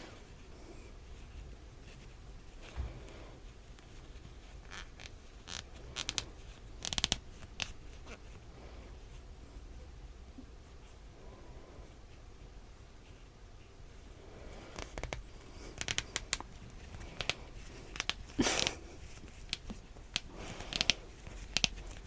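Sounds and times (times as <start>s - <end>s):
needle squeaking through stitches: 4.6s - 8.2s.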